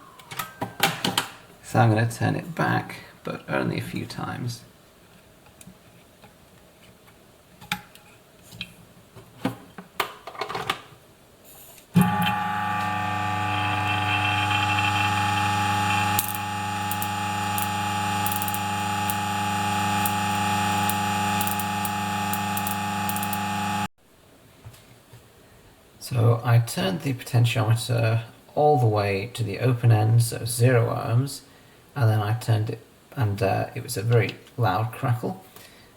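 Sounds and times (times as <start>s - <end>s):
coffee grinder motor humming: 12.0s - 23.9s.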